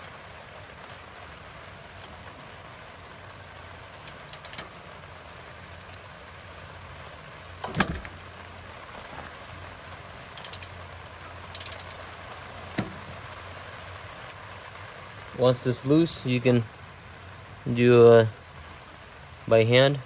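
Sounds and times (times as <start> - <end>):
ratchet wrench clicking: 4.0 - 4.7, 10.4 - 10.8, 11.5 - 12.0.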